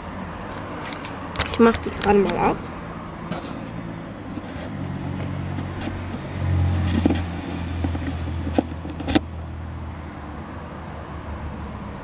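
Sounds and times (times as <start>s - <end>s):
vehicle engine droning: 0.0s - 12.0s
light clicks and knocks: 3.3s - 9.5s.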